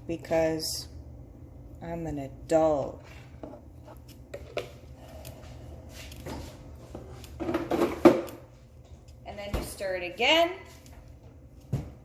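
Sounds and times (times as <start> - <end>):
kitchen things clicking and knocking: 6.2 - 8.5.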